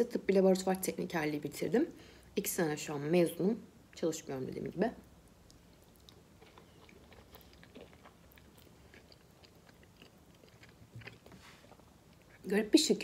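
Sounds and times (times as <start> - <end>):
faint chewing mouth clicks: 5.2 - 12.5.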